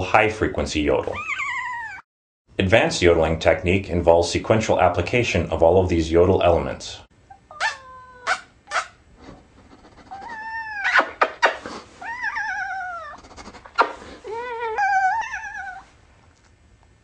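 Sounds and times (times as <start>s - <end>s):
cat yowling: 1.2s - 2.0s, 7.3s - 9.0s, 10.0s - 11.3s, 12.0s - 13.2s, 14.3s - 15.9s.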